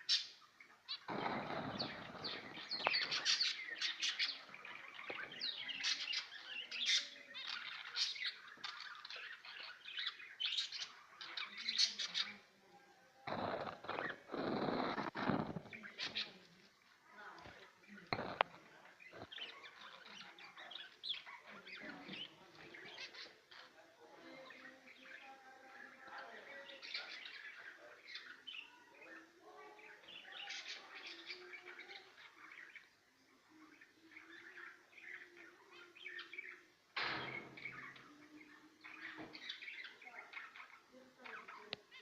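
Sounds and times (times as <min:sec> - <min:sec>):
budgerigars chirping: 0:00.0 - 0:12.4
small birds chirping: 0:00.0 - 0:42.0.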